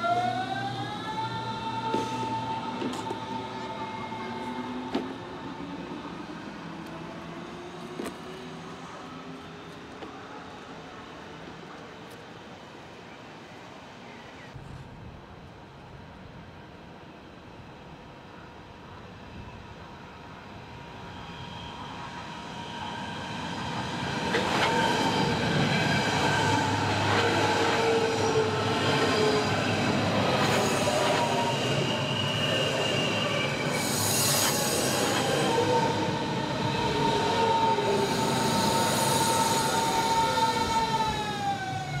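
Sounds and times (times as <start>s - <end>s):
electric train passing: 0.0s - 11.8s, 16.6s - 42.0s
wheels squealing on rails: 20.9s - 42.0s.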